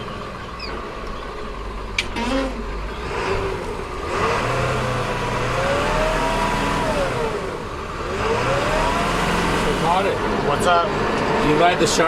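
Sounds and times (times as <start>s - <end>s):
dirt bike engine revving: 2.0s - 11.6s.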